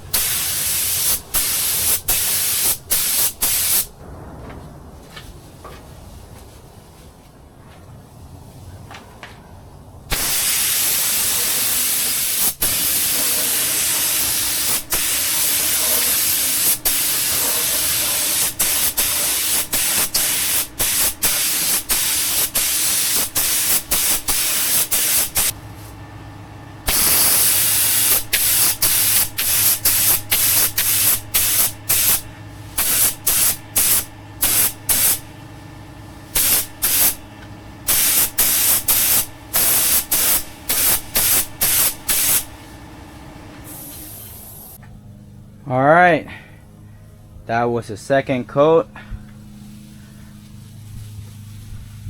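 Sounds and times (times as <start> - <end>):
paint spray gun hissing: 0.0 - 3.9, 10.1 - 25.6, 26.9 - 35.3, 36.3 - 37.2, 37.9 - 42.6, 43.6 - 44.8
low hum: 3.9 - 10.1.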